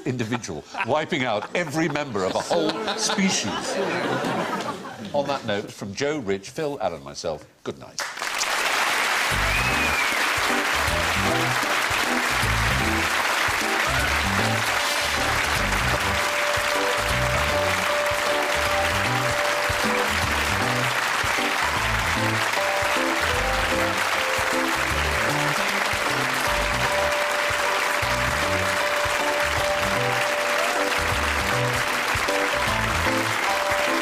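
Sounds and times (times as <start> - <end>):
studio audience applauding: 8.0 - 34.0
theme music with bass line: 9.3 - 34.0.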